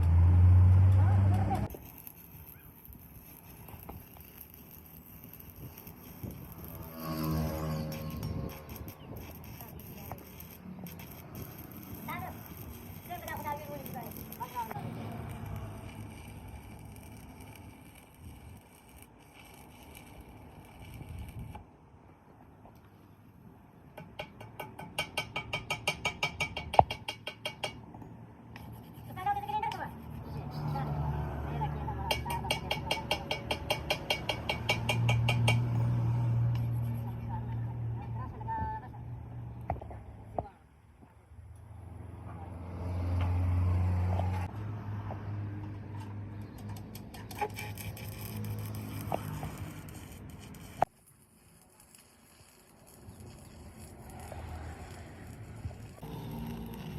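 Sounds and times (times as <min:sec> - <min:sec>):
light crackling: 0:46.4 - 0:56.9.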